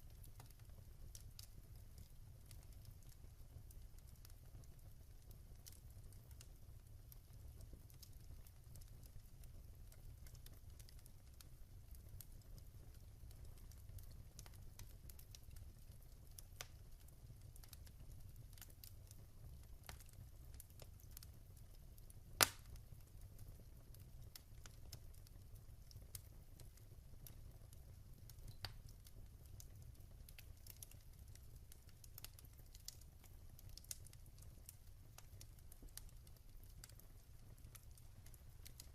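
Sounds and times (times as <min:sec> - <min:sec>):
wood fire crackling: 0:00.0 - 0:38.9
sharp pop from fire: 0:22.4 - 0:22.8.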